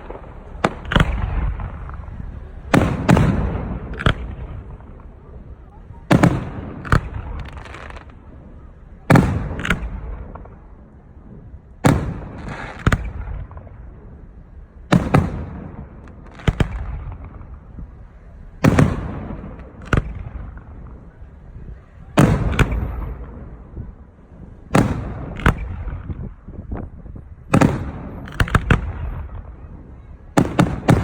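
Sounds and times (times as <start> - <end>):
sharp firework crack: 0.0 - 10.8, 11.5 - 14.2, 14.8 - 21.2, 22.1 - 26.9, 27.5 - 29.8, 30.4 - 31.0
rumbling echoes: 0.0 - 21.4
firework shells booming: 0.0 - 31.0.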